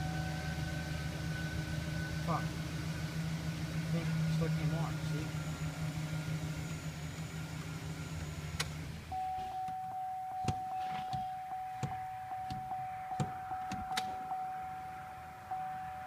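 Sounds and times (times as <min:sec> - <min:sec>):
truck engine idling: 0:00.0 - 0:16.0
electronic warning chime: 0:09.1 - 0:16.0.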